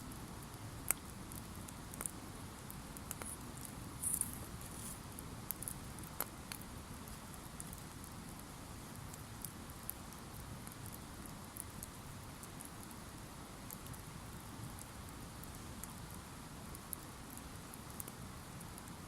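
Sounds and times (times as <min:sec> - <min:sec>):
campfire crackling: 0:00.1 - 0:19.0
sharp pops from fire: 0:00.8 - 0:04.4.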